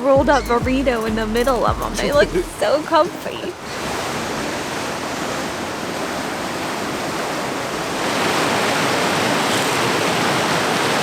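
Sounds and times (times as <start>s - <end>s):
ocean surf washing: 0.9s - 11.0s.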